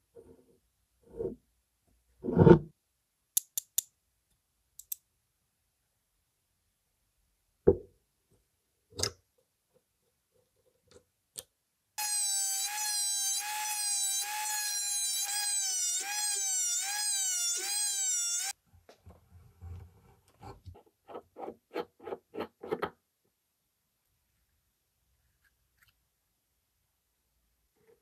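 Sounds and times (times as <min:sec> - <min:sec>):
power tool motor whine: 0:12.0 - 0:18.6.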